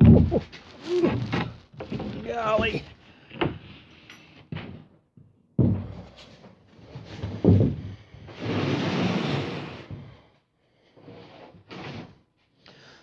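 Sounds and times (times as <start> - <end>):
loud thuds of objects handled: 0.0 - 3.6
steady scraping: 0.0 - 4.1.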